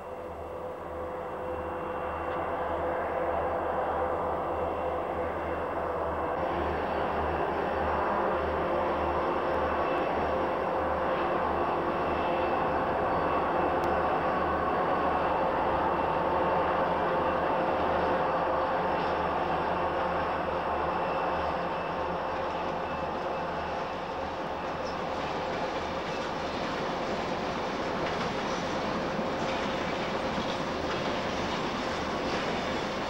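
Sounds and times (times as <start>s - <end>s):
train running past: 0.0s - 33.0s.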